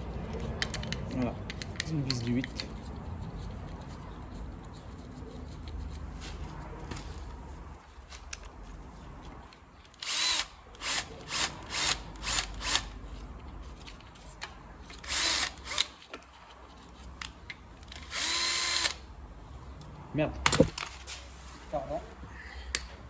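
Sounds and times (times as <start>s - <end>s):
power drill-driver bursts: 10.0s - 12.8s, 15.1s - 15.9s, 18.0s - 19.0s.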